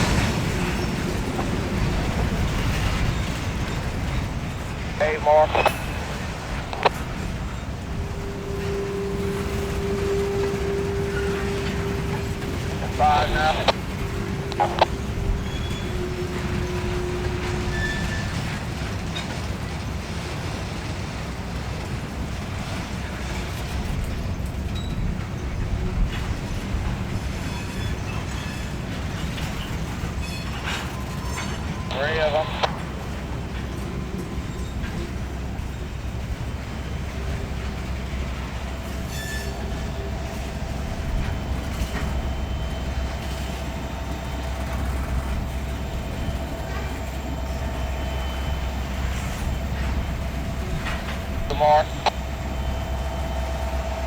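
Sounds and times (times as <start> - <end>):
freight train rumbling: 0.0 - 54.0
wheel squeal: 39.1 - 39.8.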